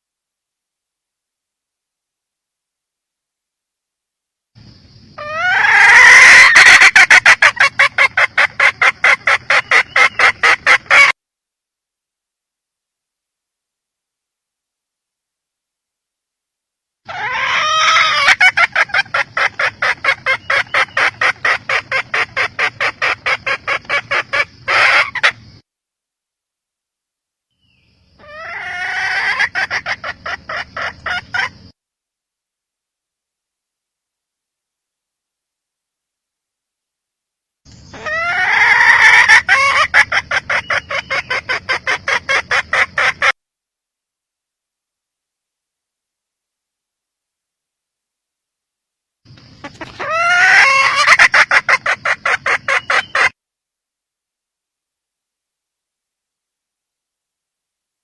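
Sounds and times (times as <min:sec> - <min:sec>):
hen calling: 0:05.2 - 0:11.2, 0:17.1 - 0:25.4, 0:28.2 - 0:31.6, 0:37.7 - 0:43.4, 0:49.3 - 0:53.4
hen clucking: 0:05.2 - 0:11.2, 0:17.1 - 0:25.6, 0:28.2 - 0:31.7, 0:37.9 - 0:43.4, 0:49.3 - 0:53.4.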